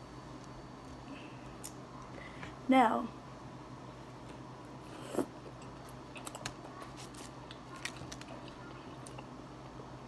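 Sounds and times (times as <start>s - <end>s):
person chewing: 5.0s - 9.3s.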